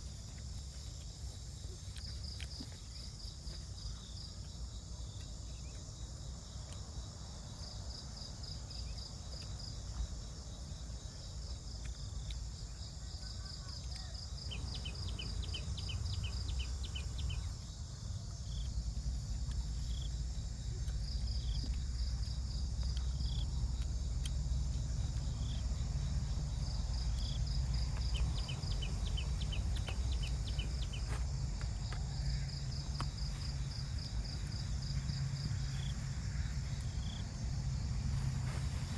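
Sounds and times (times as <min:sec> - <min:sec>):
crickets chirping: 0:00.0 - 0:38.9
steady low rumble: 0:14.4 - 0:38.9.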